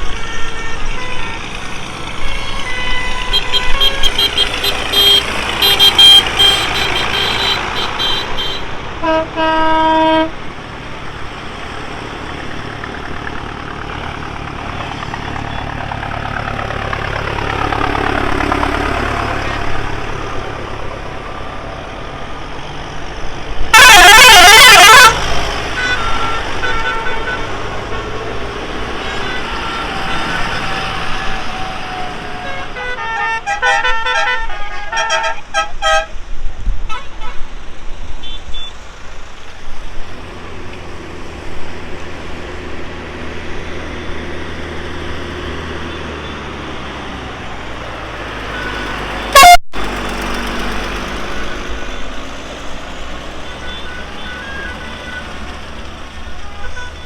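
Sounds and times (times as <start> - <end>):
horn toots: 0.0 - 10.4, 23.7 - 36.2, 48.0 - 50.4
tractor engines running: 0.0 - 36.2, 38.7 - 57.0
short horn blast: 2.2 - 10.4, 23.7 - 28.0, 48.4 - 50.0
warbling siren-like horn: 23.7 - 36.1, 48.3 - 49.6.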